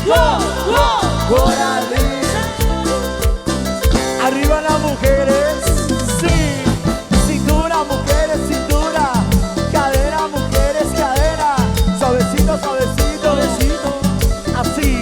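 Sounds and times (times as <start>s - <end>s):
live band playing cumbia: 0.0s - 15.0s.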